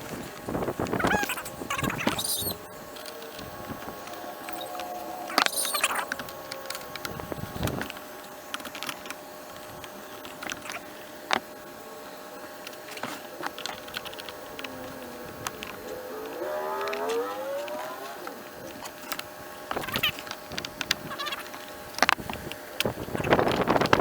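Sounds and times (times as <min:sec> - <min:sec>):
rising pitched sound: 0:00.9 - 0:07.9, 0:13.3 - 0:20.2.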